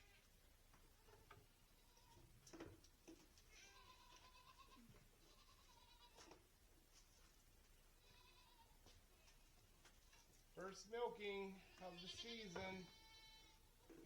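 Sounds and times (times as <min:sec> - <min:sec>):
goat kids bleating: 0:00.9 - 0:02.4, 0:03.4 - 0:06.4, 0:07.9 - 0:09.4, 0:11.4 - 0:14.0.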